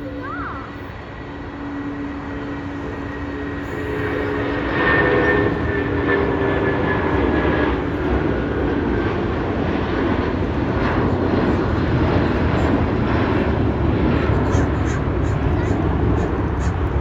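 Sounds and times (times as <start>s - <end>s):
high engine whine: 0.0s - 17.0s
jet airliner engines passing: 0.0s - 17.0s.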